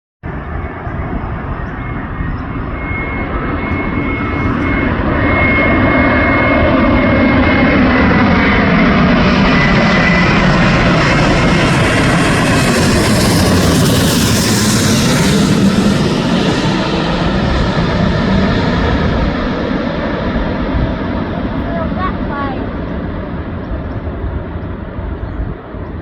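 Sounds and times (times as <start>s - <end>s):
jet engines rumbling: 0.2s - 26.0s.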